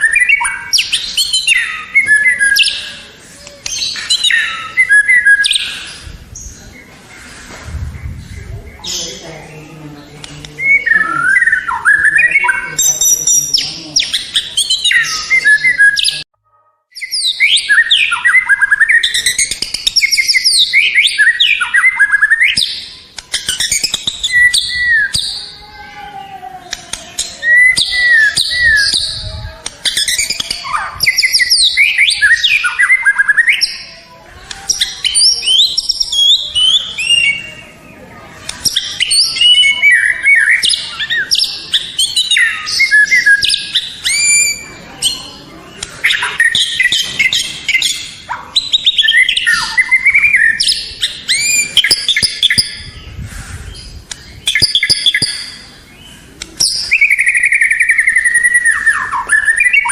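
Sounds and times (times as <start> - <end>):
bird singing rapid whistles: 0.0 - 3.0, 3.6 - 6.6, 10.6 - 16.2, 16.9 - 25.6, 27.0 - 33.9, 38.6 - 45.3, 46.0 - 59.9.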